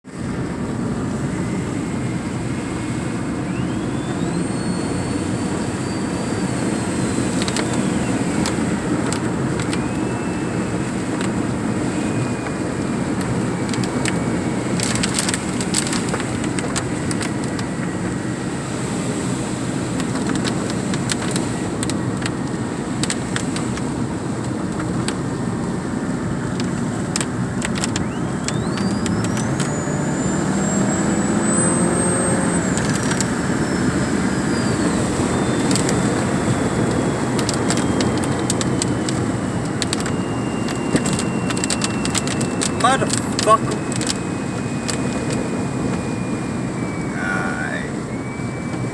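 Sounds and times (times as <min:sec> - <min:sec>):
car engine and road noise: 0:00.0 - 0:48.9
faint whine: 0:00.1 - 0:48.9
sharp clicks: 0:26.6 - 0:29.8, 0:35.4 - 0:46.0.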